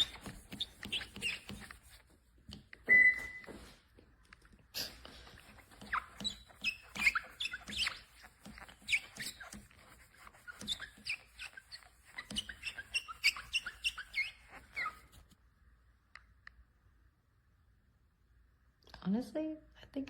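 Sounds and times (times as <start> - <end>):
foam sponge squeaking on car paint: 0.0 - 2.3, 4.8 - 15.3.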